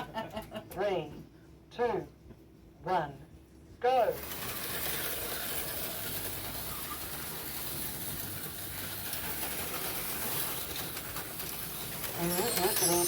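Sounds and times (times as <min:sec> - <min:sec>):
slot cars rattling: 0:04.1 - 0:13.0
small electric motors whirring: 0:04.2 - 0:13.0.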